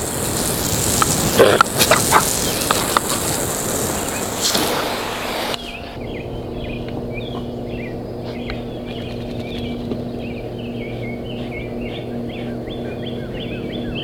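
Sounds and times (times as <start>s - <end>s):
garden hose spraying water: 0.0s - 5.8s
birds chirping: 0.0s - 14.0s
steady low hum: 0.0s - 14.0s.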